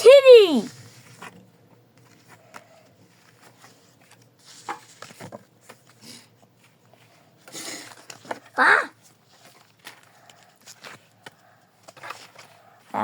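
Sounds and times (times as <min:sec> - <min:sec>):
cards clicking and rustling: 0:07.5 - 0:08.5, 0:09.2 - 0:12.7.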